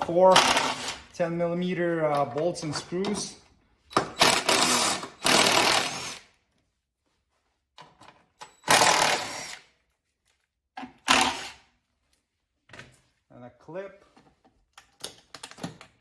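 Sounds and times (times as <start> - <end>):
impact driver hammering bolts: 3.9 - 6.0.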